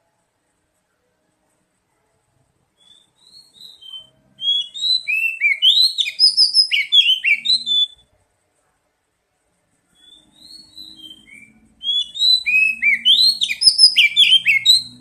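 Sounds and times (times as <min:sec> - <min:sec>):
bird whistling song: 0:02.8 - 0:08.1, 0:09.9 - 0:15.0.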